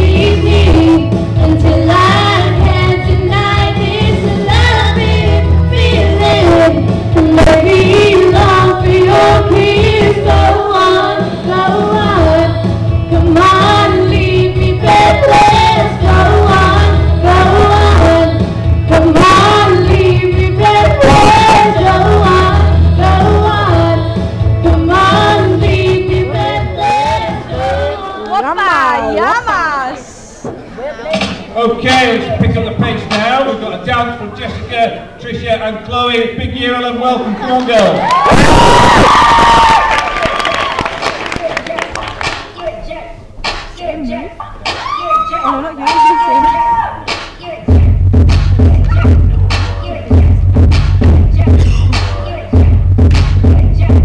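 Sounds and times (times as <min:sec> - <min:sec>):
backing track with heavy bass: 0:00.0 - 0:28.6, 0:45.6 - 0:54.0
girls singing: 0:00.0 - 0:29.4, 0:41.0 - 0:54.0.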